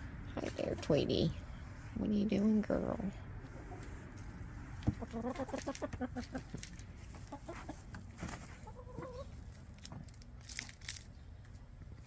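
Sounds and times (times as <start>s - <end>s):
hens clucking: 4.7s - 9.5s.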